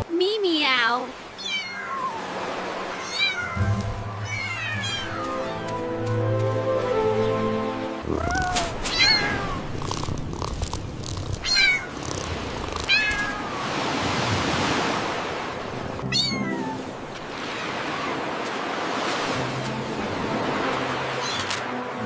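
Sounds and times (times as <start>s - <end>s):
kitten mewing: 8.0s - 10.5s.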